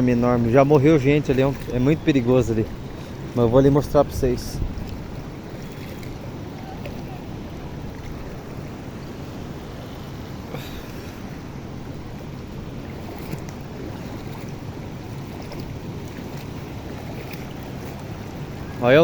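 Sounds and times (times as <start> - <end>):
wind on microphone: 0.0 - 19.0
waterfall rushing: 5.0 - 15.2.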